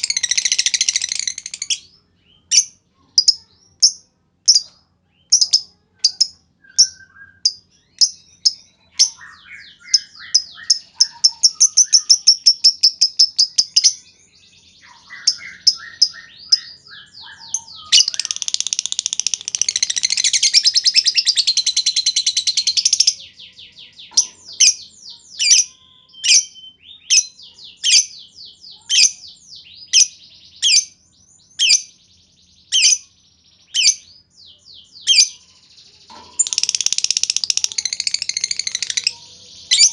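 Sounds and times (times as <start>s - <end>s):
lovebird chirping: 0.0s - 32.0s, 32.7s - 39.9s
lovebird chattering trill: 5.3s - 14.0s, 14.8s - 23.3s, 36.1s - 39.9s.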